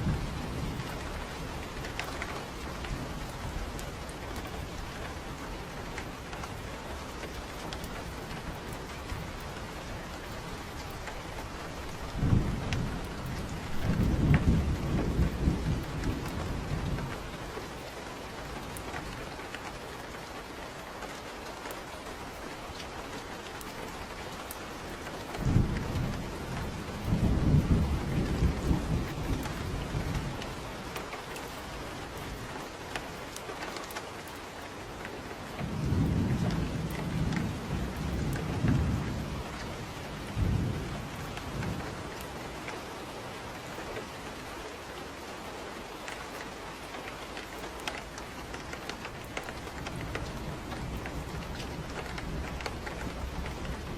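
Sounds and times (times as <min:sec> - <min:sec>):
rolling thunder: 0:00.0 - 0:04.9, 0:11.7 - 0:17.5, 0:25.4 - 0:30.6, 0:35.6 - 0:42.2, 0:48.5 - 0:53.9
steady rain falling: 0:00.0 - 0:53.9.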